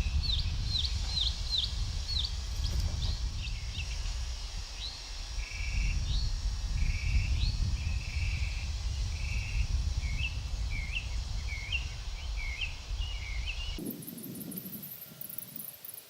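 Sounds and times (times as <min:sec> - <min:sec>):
bird chirping: 0:10.1 - 0:16.0.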